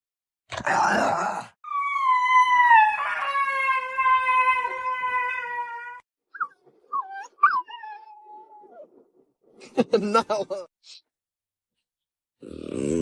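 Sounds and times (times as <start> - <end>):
dog howling: 1.6 - 9.0
dog yipping: 6.4 - 8.9.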